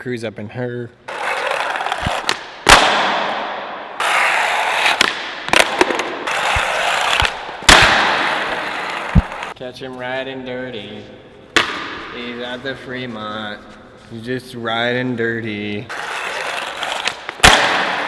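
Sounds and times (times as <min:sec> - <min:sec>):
skateboard bearings rolling on pavement: 0:01.1 - 0:02.3, 0:04.0 - 0:09.6, 0:15.9 - 0:18.0
skateboard slapping: 0:01.1 - 0:09.6, 0:15.9 - 0:18.0.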